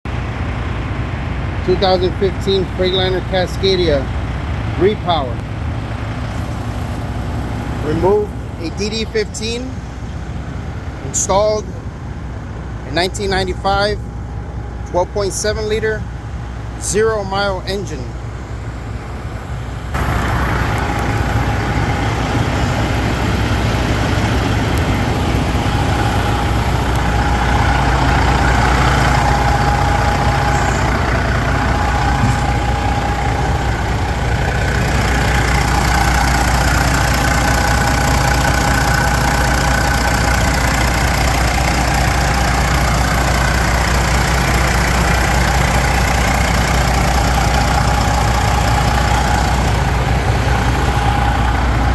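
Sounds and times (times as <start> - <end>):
diesel engine idling: 0.0 - 51.9
thin steady whine: 11.0 - 51.9.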